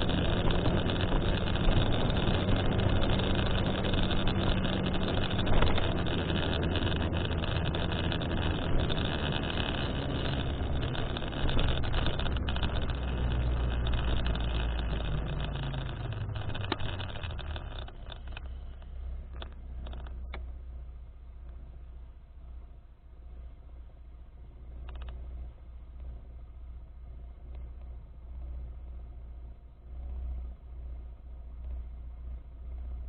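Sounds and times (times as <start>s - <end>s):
vehicle running with low rumble: 0.0s - 33.0s
clicks: 0.6s - 20.5s.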